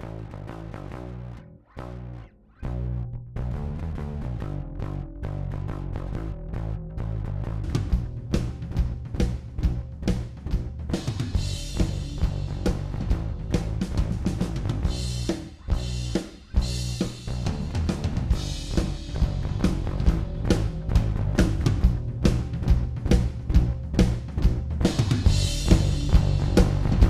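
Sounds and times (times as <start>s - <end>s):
sustained bass notes: 0.0s - 27.0s
drum kit: 7.6s - 27.0s.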